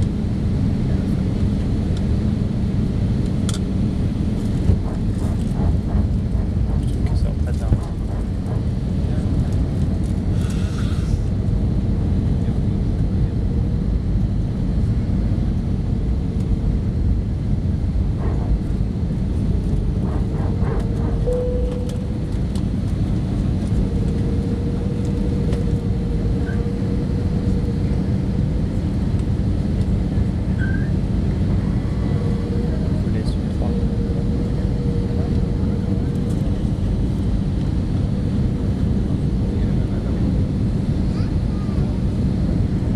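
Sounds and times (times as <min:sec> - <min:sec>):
engine and airflow rush: 0:00.0 - 0:42.9
steady mid-pitched tone: 0:19.6 - 0:37.4.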